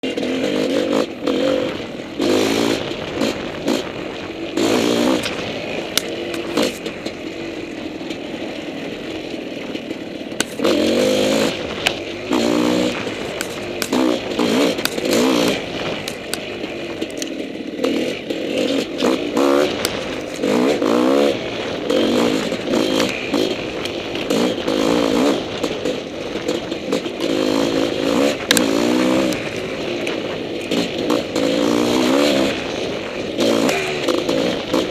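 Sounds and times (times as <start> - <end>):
dirt bike engine revving: 0.0 - 34.9
sharp clicks and clatter: 0.0 - 34.9.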